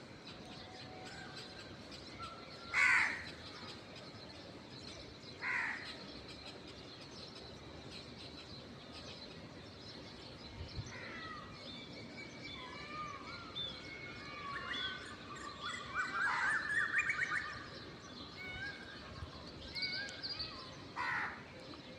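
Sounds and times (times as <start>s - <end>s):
outdoor background noise: 0.0s - 21.9s
small birds chirping: 0.0s - 21.9s
crow cawing: 2.7s - 3.3s, 5.4s - 5.9s, 21.0s - 21.4s.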